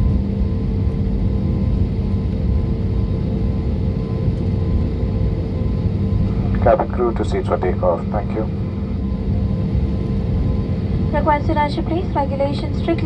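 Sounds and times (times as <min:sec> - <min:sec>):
airliner engines rumbling: 0:00.0 - 0:13.0
faint steady hum: 0:05.8 - 0:13.0.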